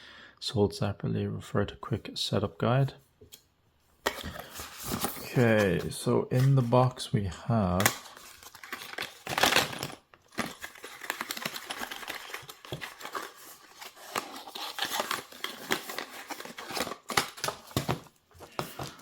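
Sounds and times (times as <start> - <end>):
packaging crinkling and rustling: 4.0 - 6.8, 7.8 - 19.0.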